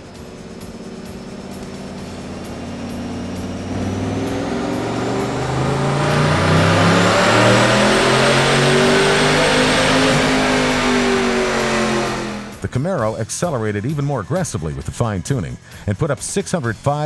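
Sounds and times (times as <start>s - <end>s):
car engine at full throttle: 0.0s - 12.6s.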